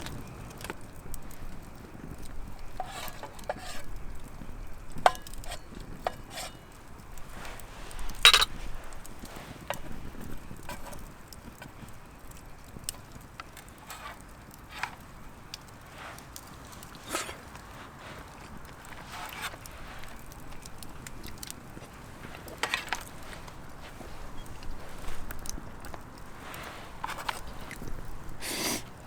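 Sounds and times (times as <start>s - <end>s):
metal utensils clinking and scraping: 2.6s - 4.1s, 4.9s - 11.8s, 13.6s - 15.1s, 15.9s - 28.9s.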